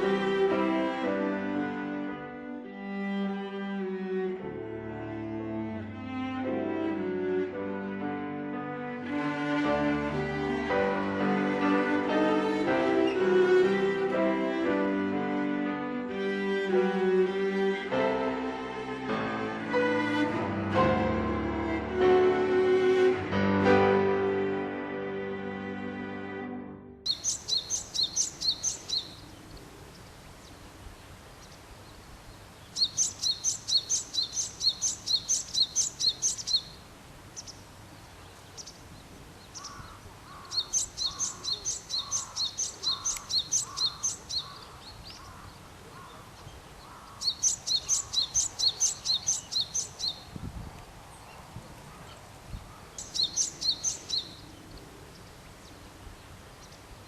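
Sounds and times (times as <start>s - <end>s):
songbird singing high notes: 27.1s - 29.4s, 32.6s - 36.8s, 39.5s - 45.4s, 46.0s - 50.4s, 53.0s - 54.8s
softer lower bird calls: 27.1s - 30.6s, 31.4s - 50.3s, 51.2s - 55.9s.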